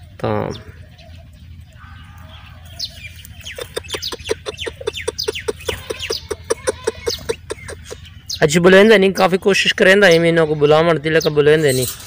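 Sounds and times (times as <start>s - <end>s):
rapid short bird calls: 0.0s - 8.6s.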